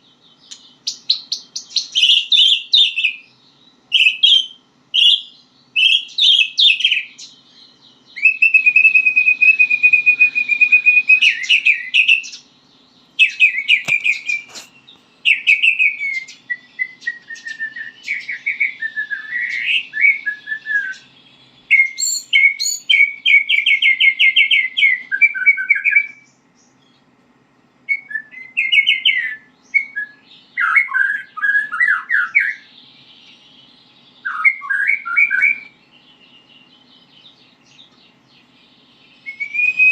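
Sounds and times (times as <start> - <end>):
songbird whistling and trilling: 0.0 - 27.1, 27.8 - 39.9
sharp click: 13.7 - 14.7.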